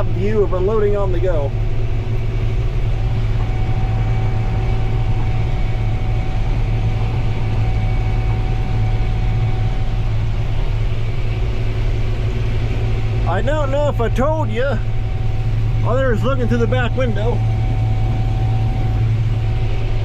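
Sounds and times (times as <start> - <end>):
combine harvester engine drone: 0.0 - 20.0
thin steady whine: 0.0 - 20.0.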